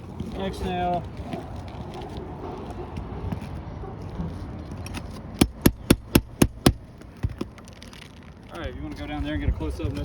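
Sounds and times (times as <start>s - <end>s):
wind: 0.0s - 10.0s
handling noise: 4.3s - 8.2s
hammer tapping on nail: 5.4s - 7.4s.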